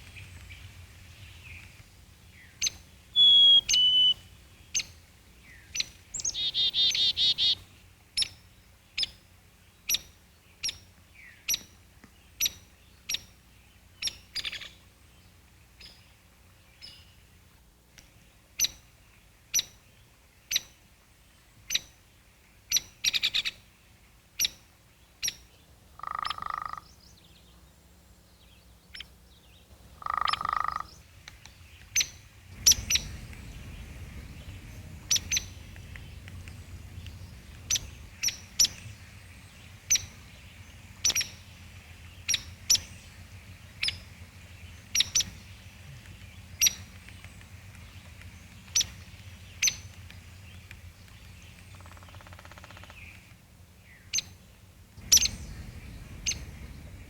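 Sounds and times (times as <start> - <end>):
faint low hum: 0.0 - 57.0
low nasal animal calls: 3.2 - 4.2
sharp animal chip calls: 3.2 - 4.2, 6.2 - 7.6.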